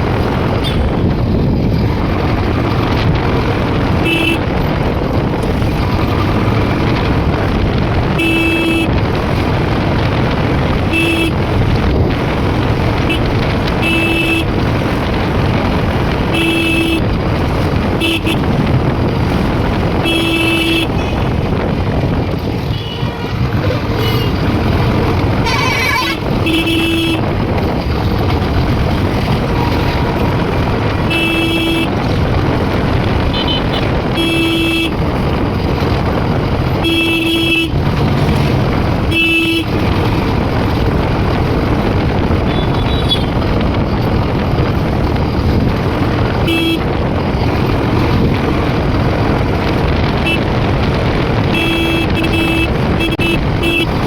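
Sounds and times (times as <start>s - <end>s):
motorcycle engine: 0.0s - 54.0s
wind rush: 0.0s - 54.0s
horn beeps: 51.5s - 54.0s.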